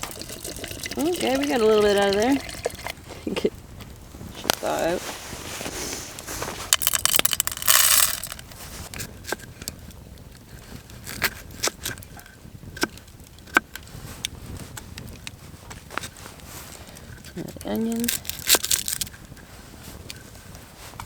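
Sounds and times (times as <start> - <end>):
rustling and scraping: 2.6 - 9.8, 13.5 - 21.0.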